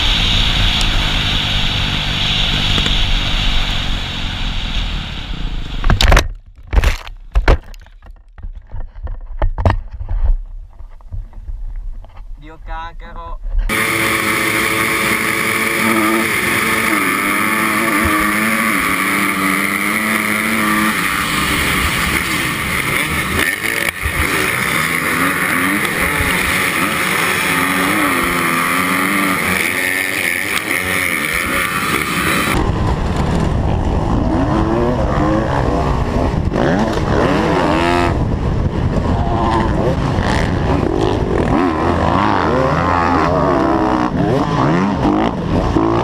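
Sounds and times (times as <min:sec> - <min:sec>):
dirt bike engine revving: 0:13.7 - 0:46.0.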